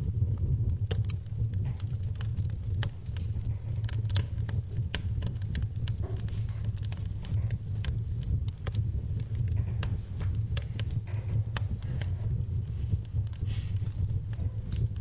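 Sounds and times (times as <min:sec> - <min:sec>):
low steady rumble: 0:00.0 - 0:15.0
wood fire crackling and popping: 0:00.0 - 0:15.0.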